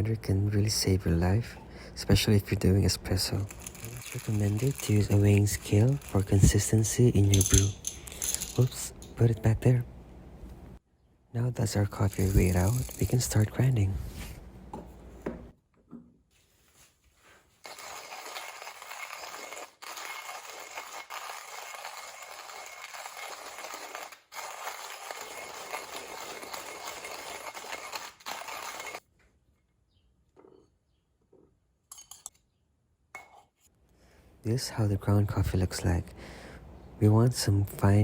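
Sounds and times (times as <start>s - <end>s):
hand coffee grinder grinding: 3.3s - 8.8s, 11.9s - 13.5s, 17.6s - 29.0s.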